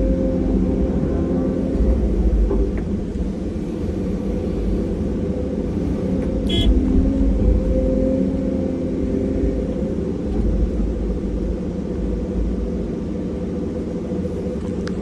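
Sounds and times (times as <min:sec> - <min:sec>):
diesel engine rumbling: 0:00.9 - 0:12.6.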